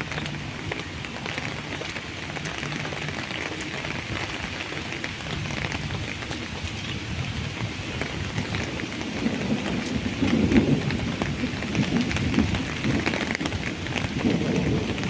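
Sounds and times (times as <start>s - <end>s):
raindrops ticking: 0.0s - 15.0s
steady rain falling: 0.0s - 15.0s.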